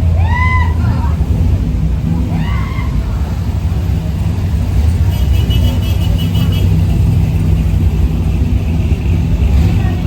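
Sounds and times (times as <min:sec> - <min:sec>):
car engine low rumble: 0:00.0 - 0:10.0.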